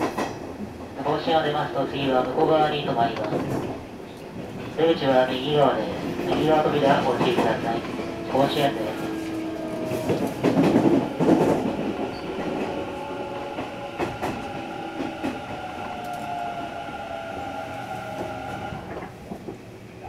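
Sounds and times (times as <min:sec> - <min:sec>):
train wheels clattering over rail joints: 0:00.0 - 0:01.0, 0:06.0 - 0:19.8
train running noise: 0:00.0 - 0:20.0
train motor whine: 0:07.9 - 0:19.2.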